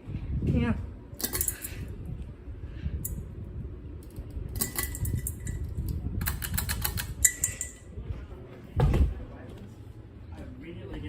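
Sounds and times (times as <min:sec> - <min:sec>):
ceiling fan airflow rumble: 0:00.0 - 0:11.0
light clinking: 0:01.2 - 0:02.0, 0:04.0 - 0:07.9.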